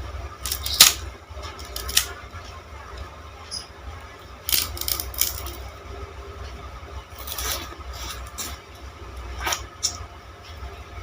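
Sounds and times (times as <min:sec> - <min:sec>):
sugar cane crunching when chewed: 0:04.5 - 0:05.6, 0:07.2 - 0:08.6.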